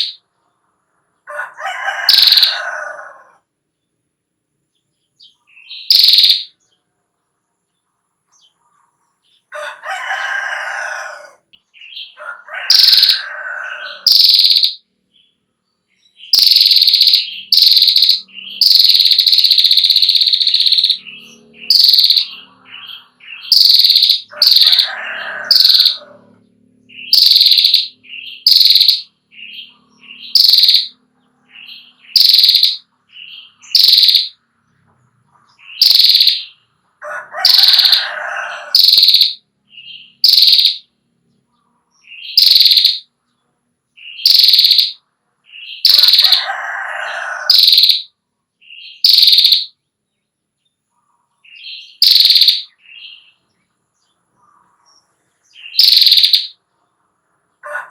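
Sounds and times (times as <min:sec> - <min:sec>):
bird buzzy rattle call: 0:00.0 - 0:00.2, 0:01.8 - 0:03.0, 0:05.8 - 0:06.5, 0:12.6 - 0:14.8, 0:16.3 - 0:32.9, 0:33.6 - 0:34.4, 0:35.7 - 0:36.6, 0:37.2 - 0:39.4, 0:40.2 - 0:40.9, 0:42.3 - 0:43.1, 0:44.2 - 0:45.0, 0:45.8 - 0:48.1, 0:49.0 - 0:49.7, 0:51.9 - 0:52.7, 0:55.6 - 0:56.6
bird sharp high chirps: 0:00.0 - 0:00.3, 0:02.0 - 0:02.9, 0:04.8 - 0:06.8, 0:11.6 - 0:26.2, 0:26.8 - 0:34.4, 0:35.3 - 0:36.8, 0:37.4 - 0:41.0, 0:41.9 - 0:43.2, 0:44.0 - 0:49.8, 0:51.0 - 0:56.7.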